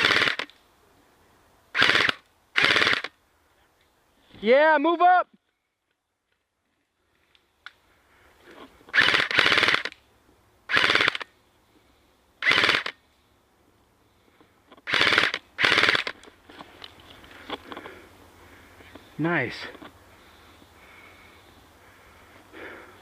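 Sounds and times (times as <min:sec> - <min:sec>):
airsoft gun bursts: 0:00.0 - 0:00.5, 0:01.7 - 0:03.1, 0:08.9 - 0:10.0, 0:10.7 - 0:11.3, 0:12.4 - 0:13.0, 0:14.8 - 0:16.2.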